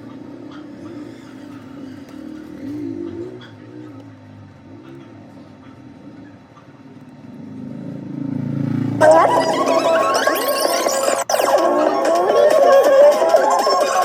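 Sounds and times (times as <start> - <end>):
electronic background music: 9.0 - 14.0.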